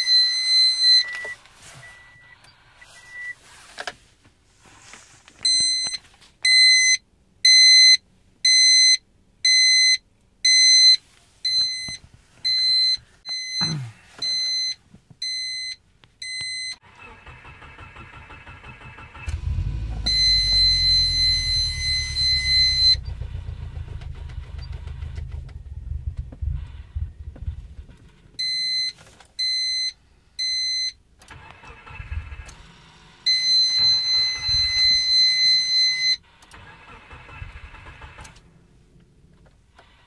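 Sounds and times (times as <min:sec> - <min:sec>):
car warning chime: 0:05.5 - 0:16.8, 0:19.0 - 0:23.2, 0:33.3 - 0:36.2
car engine cranking: 0:16.8 - 0:28.4, 0:31.2 - 0:35.4, 0:36.2 - 0:40.0.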